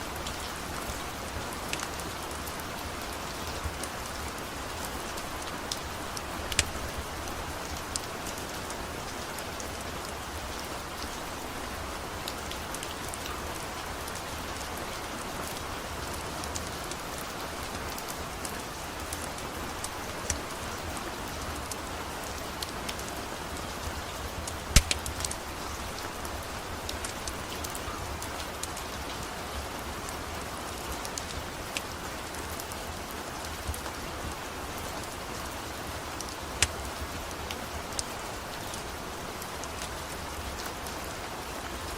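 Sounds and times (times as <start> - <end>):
steady rain: 0.0 - 41.9
wood fire crackling and popping: 6.4 - 8.1, 24.4 - 26.2, 36.6 - 36.9.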